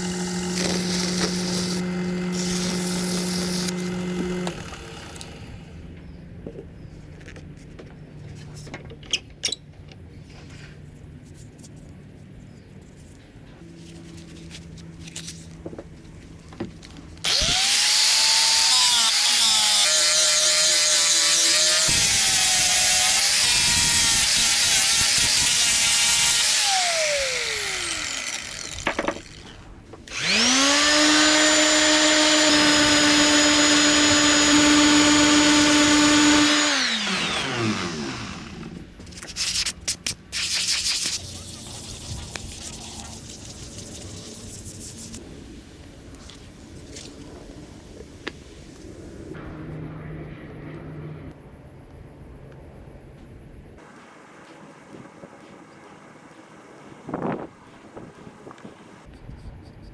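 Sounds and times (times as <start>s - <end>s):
power tool motor whine: 0.0s - 5.8s, 17.2s - 38.9s
hiss of cutting or sanding: 0.6s - 3.7s, 17.3s - 28.8s, 39.2s - 45.2s.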